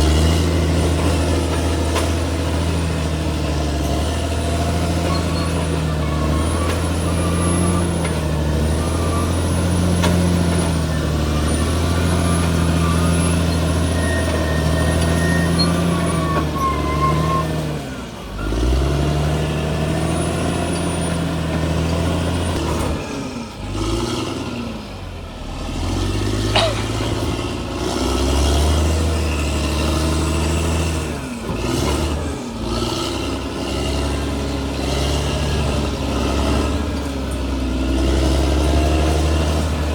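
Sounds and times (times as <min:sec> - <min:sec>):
diesel engine under load: 0:00.0 - 0:39.9
faint high squeal: 0:05.0 - 0:17.6.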